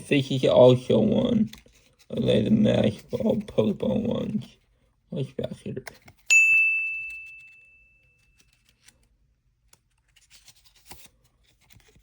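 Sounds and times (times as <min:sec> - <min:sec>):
bright bell chime ringing: 0:06.3 - 0:08.0.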